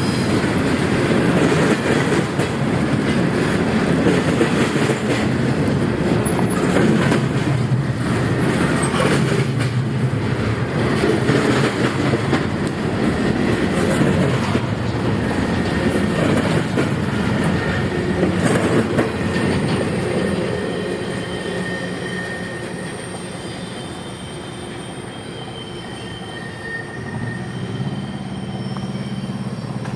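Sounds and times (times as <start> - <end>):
train wheels clattering over rail joints: 0.0 - 20.7
high steady wheel squeal: 4.1 - 9.6, 10.2 - 29.9.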